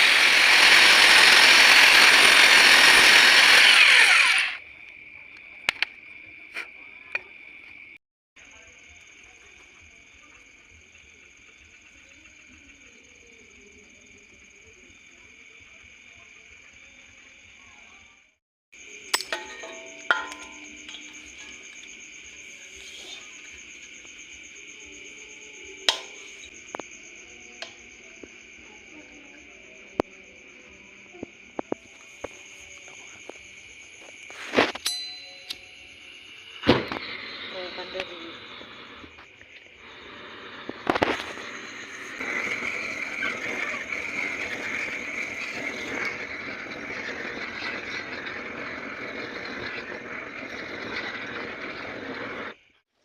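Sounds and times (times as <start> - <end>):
high insect chirring: 18.8 - 47.0
metal clanks with ringing: 19.1 - 21.6, 25.9 - 26.3, 34.8 - 35.9.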